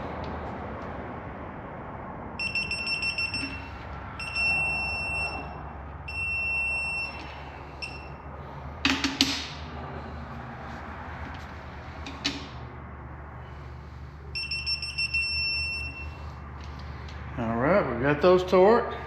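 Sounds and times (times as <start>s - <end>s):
torque wrench beeping: 2.4s - 8.2s, 14.4s - 16.3s.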